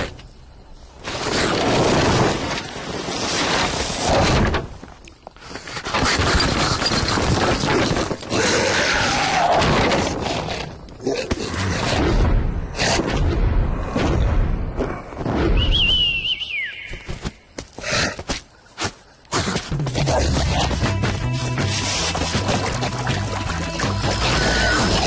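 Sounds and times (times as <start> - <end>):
falling wavering whistle: 15.6 - 17.1.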